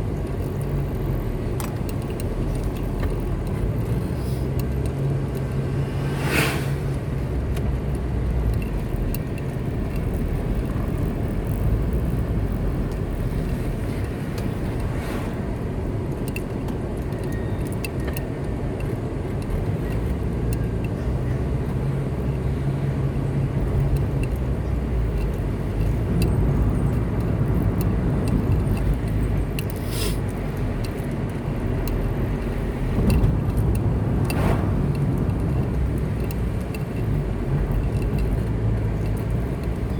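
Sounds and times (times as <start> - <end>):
car engine and tyre rumble: 0.0 - 39.9
brief swishes: 6.0 - 7.0, 34.2 - 34.8.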